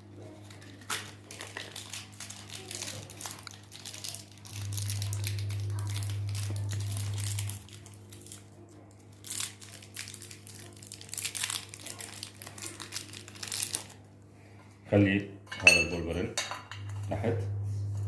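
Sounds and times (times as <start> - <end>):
packaging crinkling: 0.2 - 14.0
steady low hum: 2.8 - 9.2, 14.0 - 18.0.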